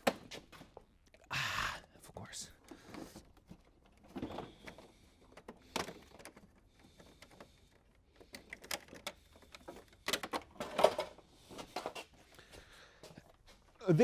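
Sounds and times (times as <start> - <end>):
plastic parts clicking and knocking: 0.0 - 1.2, 2.6 - 12.4.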